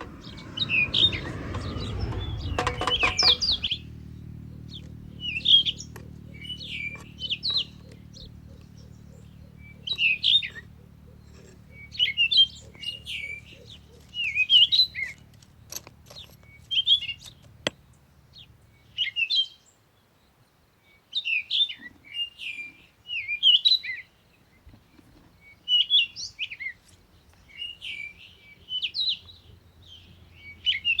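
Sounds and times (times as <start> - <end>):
songbird twittering: 0.0 - 15.2.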